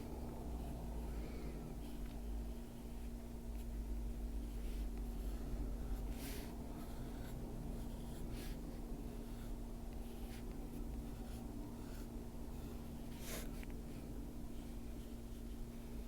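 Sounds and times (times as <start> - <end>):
steady low hum: 0.0 - 16.0
pencil shading on paper: 4.4 - 15.4.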